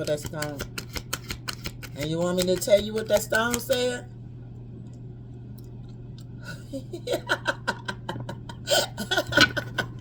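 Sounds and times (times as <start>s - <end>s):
low hum of room tone: 0.0s - 10.0s.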